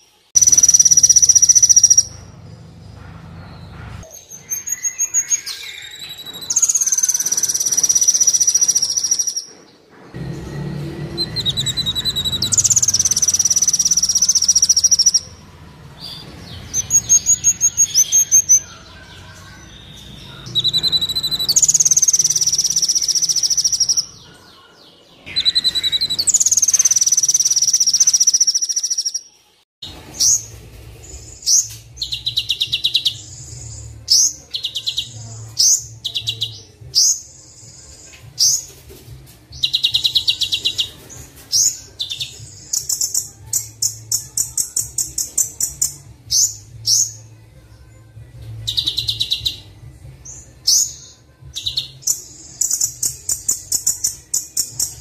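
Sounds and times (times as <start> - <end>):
sunbird song trills: 0.0 - 15.4, 16.0 - 29.3
rapid rattling bird calls: 0.4 - 10.2, 11.2 - 29.2.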